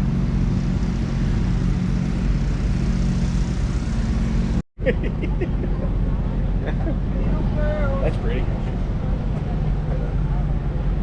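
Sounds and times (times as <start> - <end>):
vehicle engine idling: 0.0 - 11.0
faint voices: 5.6 - 11.0.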